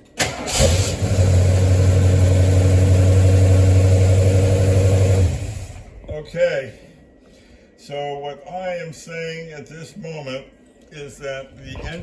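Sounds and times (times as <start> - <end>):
car engine running: 0.5 - 6.0.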